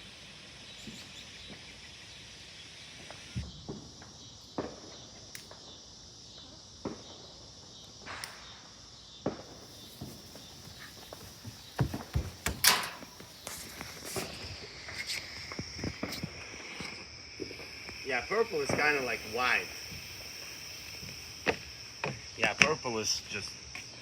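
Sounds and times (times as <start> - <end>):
night insects chirring: 0.0 - 24.0
footsteps: 9.5 - 16.9
thumps: 9.6 - 14.2
knocks: 9.8 - 13.4.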